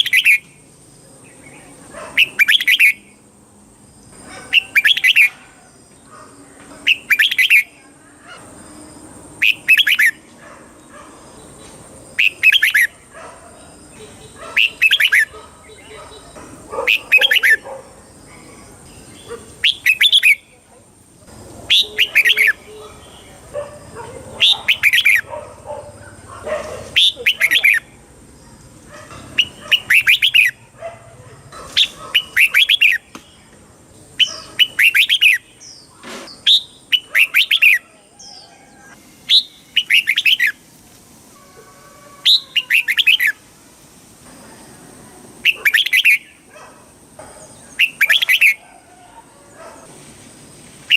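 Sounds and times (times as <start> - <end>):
bulbul singing: 0.0 - 3.2, 4.0 - 5.5, 6.8 - 7.8, 9.4 - 10.3, 11.4 - 26.2, 26.9 - 28.0, 29.1 - 30.8, 31.7 - 40.6, 42.2 - 43.4, 45.4 - 46.5, 47.2 - 48.6.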